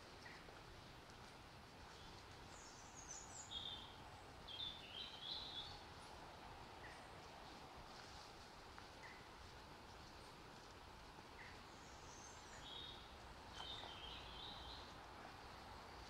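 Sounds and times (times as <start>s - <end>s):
outdoor background noise: 0.0s - 16.0s
small bird chirping: 1.9s - 6.2s, 11.4s - 15.0s.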